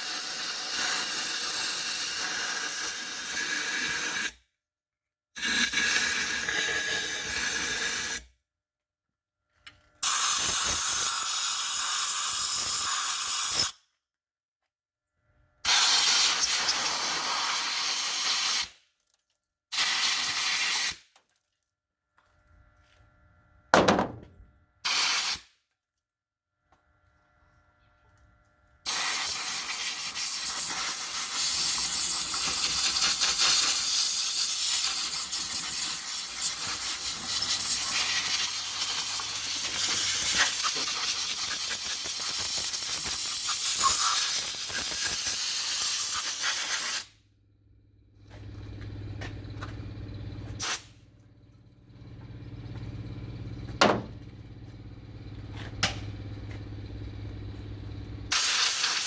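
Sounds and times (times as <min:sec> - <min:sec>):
sharp clicks and knocks: 0:23.8 - 0:24.4, 0:53.7 - 0:54.3, 0:55.6 - 0:56.2
spraying hiss: 0:28.9 - 0:47.1, 0:58.3 - 0:59.0.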